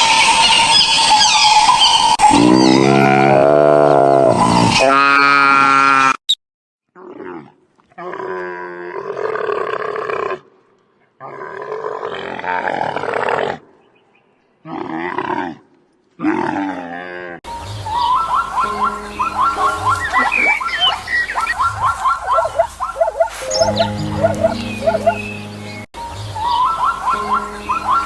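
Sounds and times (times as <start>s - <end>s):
animal calling: 0.3s - 5.2s, 17.9s - 25.8s, 26.4s - 28.0s.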